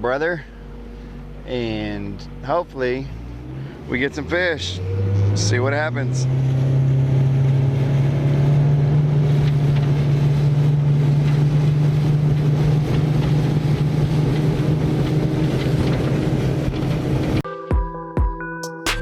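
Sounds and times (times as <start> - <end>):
boat motor humming: 0.0 - 17.4
music: 17.4 - 19.0.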